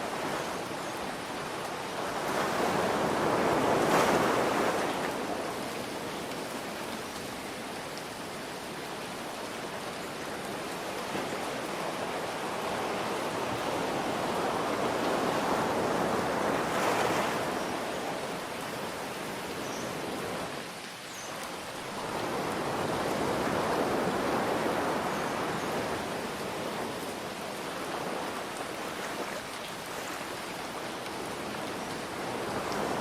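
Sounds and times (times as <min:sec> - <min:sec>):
ocean surf: 0:00.0 - 0:08.2, 0:08.8 - 0:20.7, 0:21.4 - 0:33.0
steady rain: 0:00.0 - 0:33.0.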